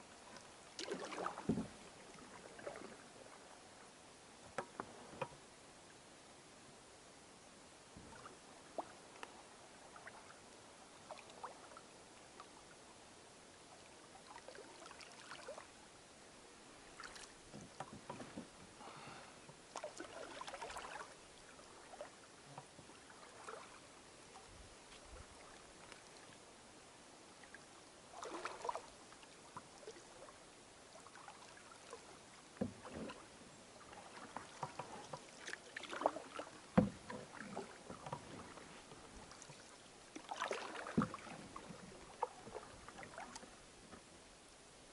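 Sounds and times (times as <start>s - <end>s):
paddle splashing water: 0.0s - 3.8s, 8.0s - 12.8s, 13.7s - 15.7s, 16.9s - 26.4s, 27.4s - 44.1s.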